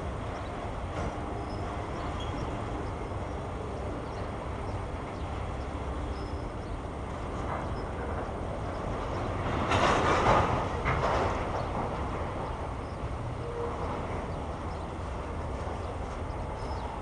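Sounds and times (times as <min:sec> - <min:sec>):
freight cars rumbling on rails: 0:00.0 - 0:17.0.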